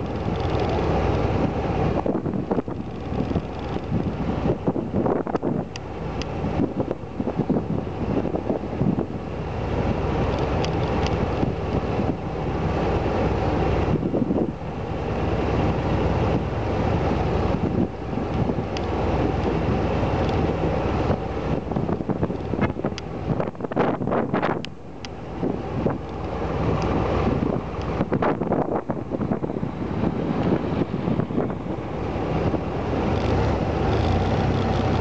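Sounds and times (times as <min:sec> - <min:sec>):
low mechanical rumble: 0:00.0 - 0:35.0
wind buffeting microphone: 0:00.0 - 0:35.0.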